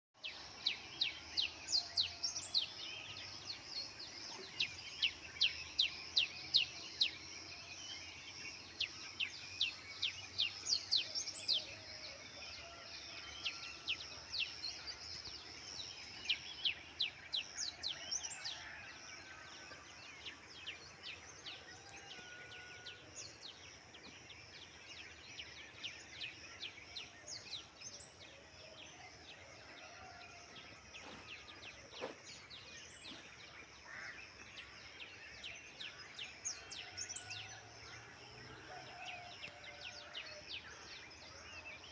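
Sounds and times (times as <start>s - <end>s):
small birds chirping: 12.7s - 41.9s.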